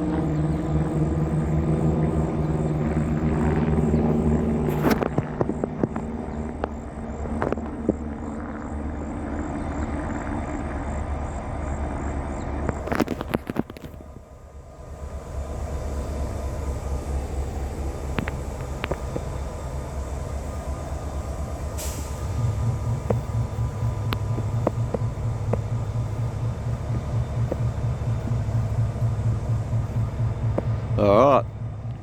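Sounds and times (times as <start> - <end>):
locomotive idling rumble: 0.0 - 32.0
short hiss: 21.6 - 22.7.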